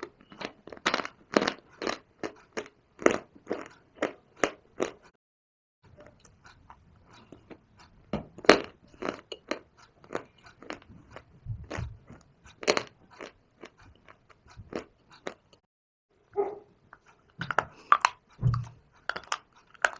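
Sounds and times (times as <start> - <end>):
stone and clay crunching in mouth: 0.0 - 5.1, 8.4 - 15.5, 17.3 - 19.9.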